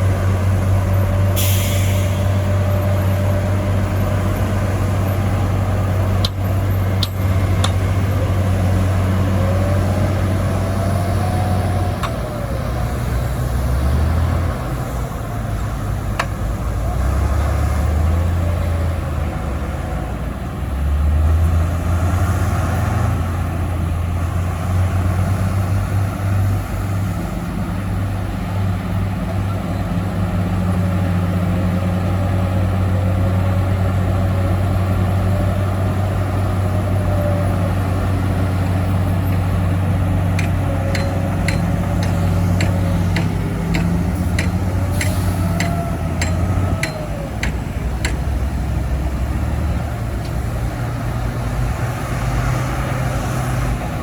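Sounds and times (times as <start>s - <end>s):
heavy diesel machinery droning: 0.0s - 54.0s
sharp metallic clanks: 40.3s - 48.3s.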